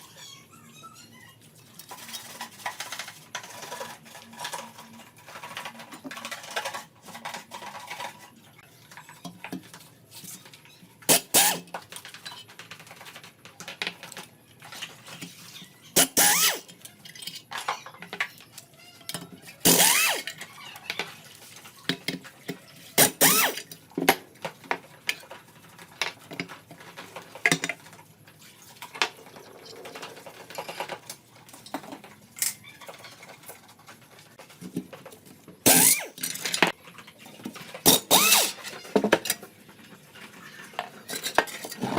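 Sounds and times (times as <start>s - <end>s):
metal tools clinking on workbench: 16.0s - 18.4s.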